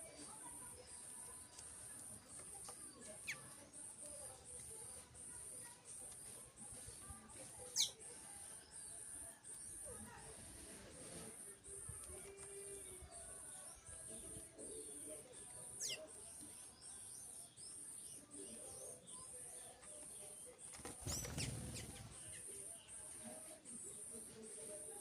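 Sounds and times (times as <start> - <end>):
small birds chirping: 0.0 - 25.0
wing flutter: 20.7 - 22.4.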